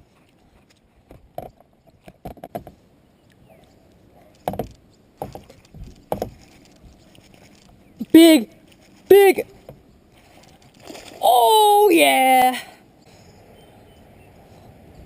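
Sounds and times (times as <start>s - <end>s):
fishing gear knocking on plastic kayak: 4.5s - 6.4s.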